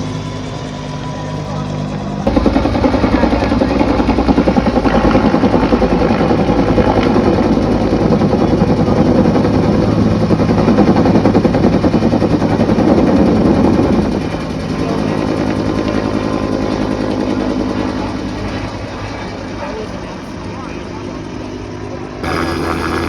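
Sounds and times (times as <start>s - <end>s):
engine running with pulsing beat: 2.3s - 8.2s, 22.2s - 23.0s.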